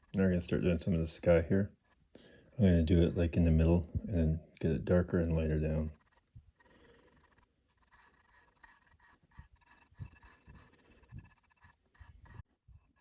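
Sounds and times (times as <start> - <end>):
paintbrush strokes on wood: 5.2 - 13.0.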